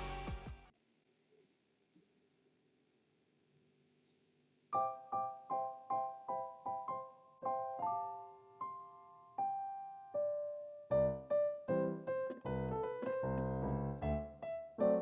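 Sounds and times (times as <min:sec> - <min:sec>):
chords and bass: 0:00.0 - 0:00.7
piano repeated notes: 0:04.8 - 0:15.0.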